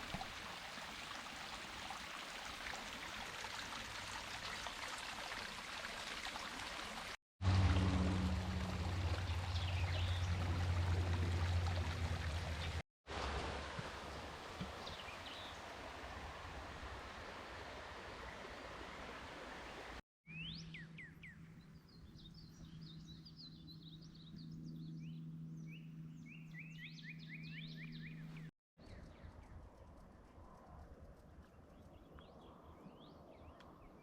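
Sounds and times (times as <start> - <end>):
water rushing in stream: 0.0 - 20.0.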